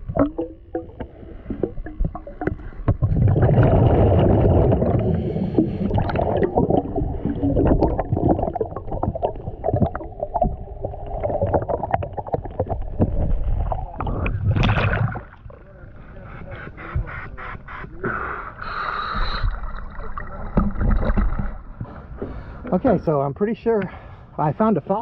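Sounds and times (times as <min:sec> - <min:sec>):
underwater exhaled bubbles rushing: 0:00.0 - 0:15.7, 0:18.7 - 0:21.8.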